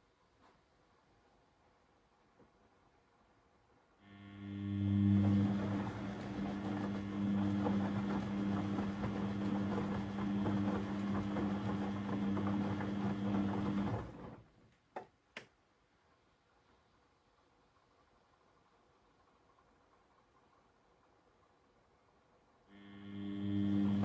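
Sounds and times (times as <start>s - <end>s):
washing machine running: 4.1s - 14.6s, 22.7s - 24.0s.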